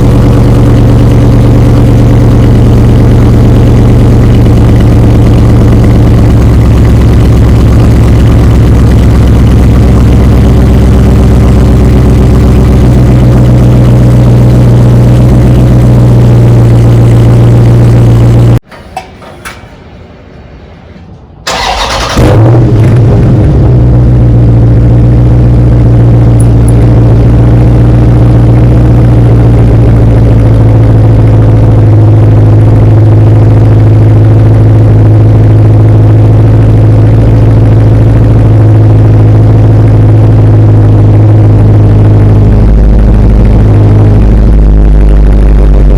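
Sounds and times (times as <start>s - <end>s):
car engine idling loudly: 0.0s - 18.6s, 21.5s - 45.9s
engine cranking and firing: 21.0s - 24.2s.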